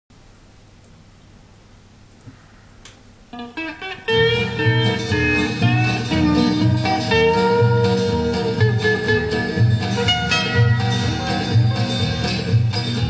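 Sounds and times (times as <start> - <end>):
record hiss: 0.1 - 13.0
country band playing: 3.4 - 13.0.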